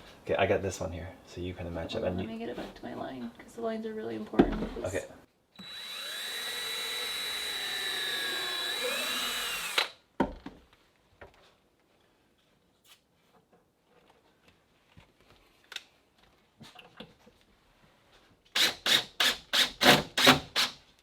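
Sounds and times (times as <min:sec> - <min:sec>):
power drill whining: 0:05.6 - 0:10.0.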